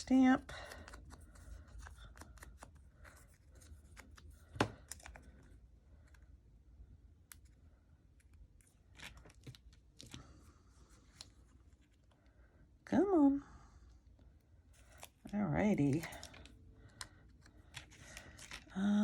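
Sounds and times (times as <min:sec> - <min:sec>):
paper rustling: 0:15.9 - 0:18.8.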